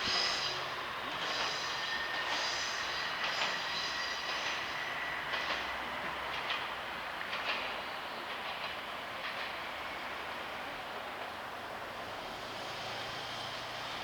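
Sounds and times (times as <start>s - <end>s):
high wheel squeal: 0.0s - 5.3s
diesel railcar moving off: 0.0s - 14.0s.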